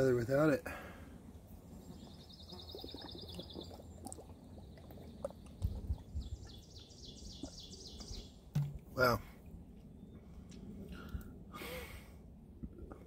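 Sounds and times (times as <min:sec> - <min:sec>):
plastic bottle handling bumps and clicks: 0:08.5 - 0:08.9.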